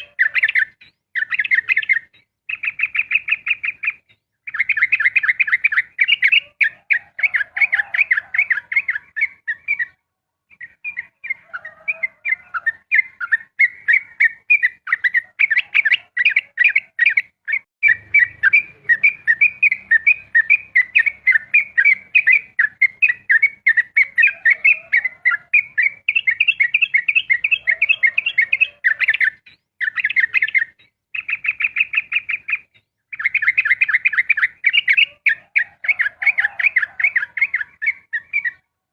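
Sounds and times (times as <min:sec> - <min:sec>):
bird singing rapid chirping song: 0:00.0 - 0:38.9.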